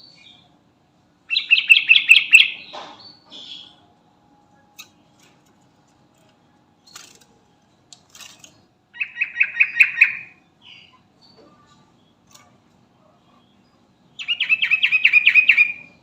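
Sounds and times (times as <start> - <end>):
bird chirping and calling: 1.3 - 3.9, 8.3 - 12.6, 13.4 - 16.0.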